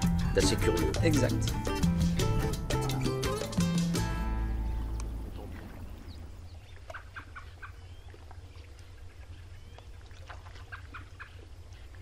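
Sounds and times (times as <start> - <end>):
birds calling: 0.0 - 12.0
steady low rumble: 4.1 - 6.9.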